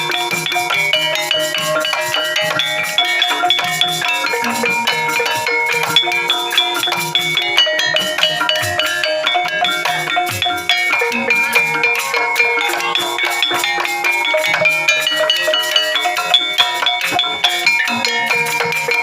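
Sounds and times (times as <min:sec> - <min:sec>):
gamelan ensemble playing: 0:00.0 - 0:19.0.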